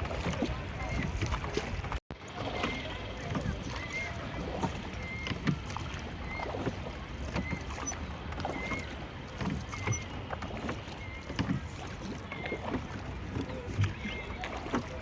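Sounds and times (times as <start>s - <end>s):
boat squeaking: 0.0s - 15.0s
water washing: 0.0s - 15.0s.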